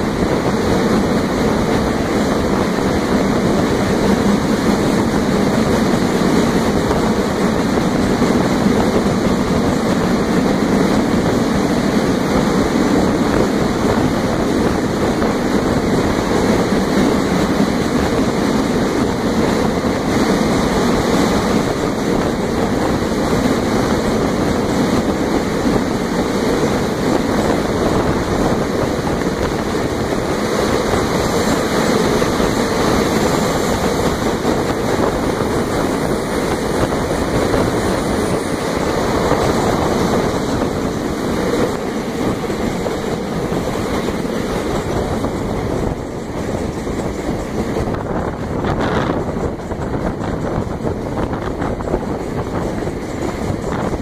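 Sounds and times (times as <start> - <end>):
train wheels roaring in tunnel: 0.0 - 54.0.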